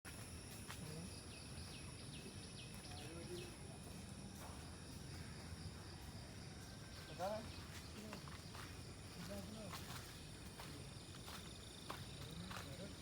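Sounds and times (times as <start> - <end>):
high insect hum: 0.1 - 13.0
bird chirping: 0.8 - 8.7.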